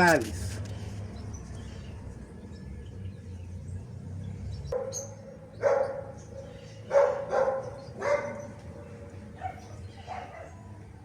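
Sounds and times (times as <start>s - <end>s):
dog barking: 4.8s - 8.8s, 9.4s - 10.6s.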